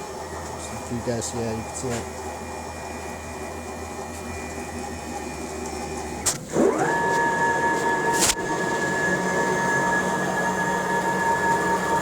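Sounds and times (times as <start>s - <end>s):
stepper motors whining: 0.0s - 12.0s.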